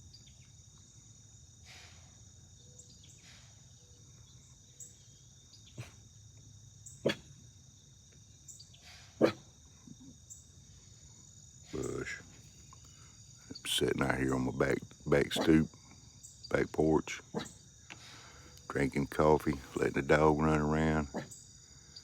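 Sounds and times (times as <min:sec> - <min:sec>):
crickets chirping: 0:00.0 - 0:22.0
deer snorting: 0:11.7 - 0:12.5, 0:13.6 - 0:15.8, 0:16.8 - 0:21.4.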